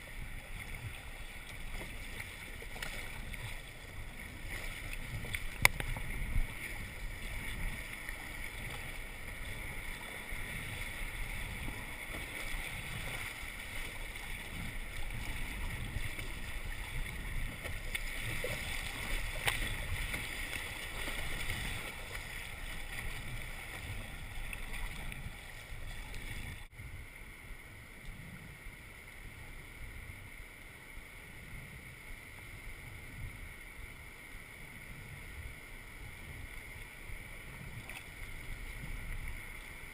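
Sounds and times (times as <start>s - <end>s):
moving water washing: 0.0s - 26.8s.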